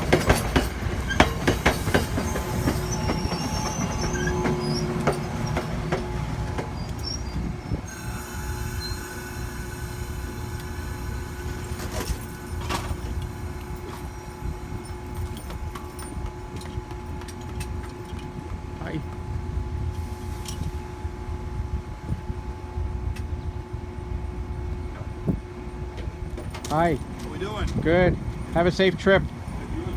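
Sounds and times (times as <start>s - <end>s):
wheels clicking over rail joints: 0.0s - 7.9s, 9.8s - 19.3s, 25.8s - 29.9s
train rumbling on rails: 0.0s - 29.9s.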